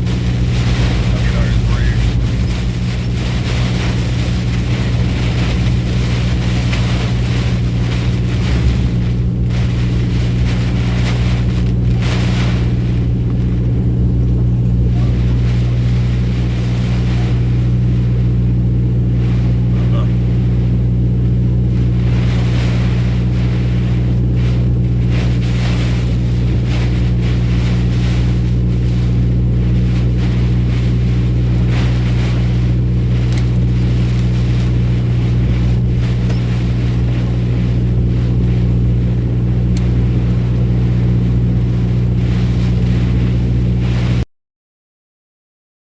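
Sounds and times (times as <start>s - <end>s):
road and wind noise: 0.0s - 19.6s, 30.6s - 43.8s
truck engine drone: 0.0s - 44.2s.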